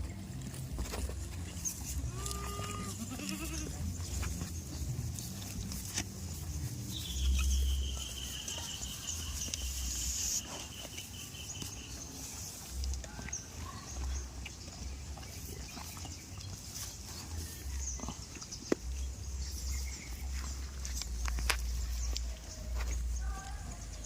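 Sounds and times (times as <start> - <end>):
goats bleating: 2.0 - 4.2.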